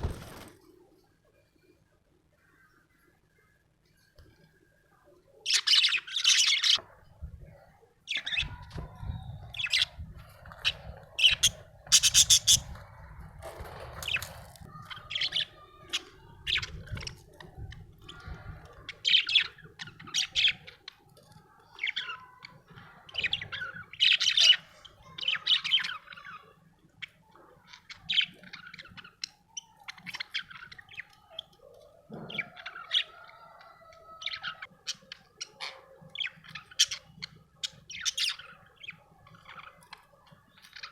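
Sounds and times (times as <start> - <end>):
budgerigar chirping and squawking: 10.6 - 12.8.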